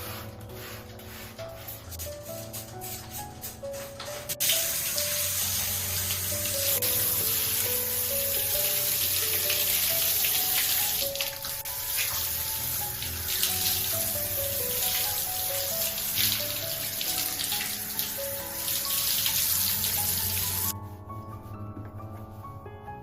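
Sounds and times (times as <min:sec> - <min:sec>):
soft background music: 0:00.0 - 0:23.0
water running in a stream: 0:04.3 - 0:20.7.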